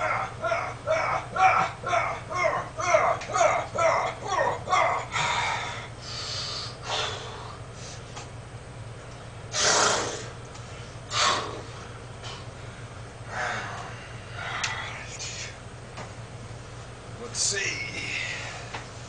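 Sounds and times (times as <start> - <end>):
man breathing out hard: 5.1 - 8.0.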